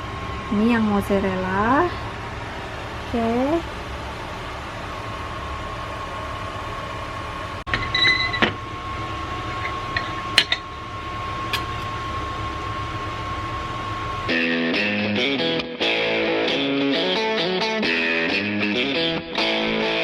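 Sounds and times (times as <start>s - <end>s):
machine hum: 0.0s - 20.0s
thin steady whine: 0.0s - 20.0s.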